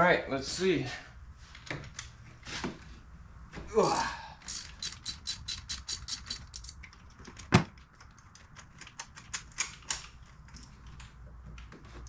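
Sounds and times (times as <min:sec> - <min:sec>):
socket ratchet clicking: 0:04.4 - 0:07.5.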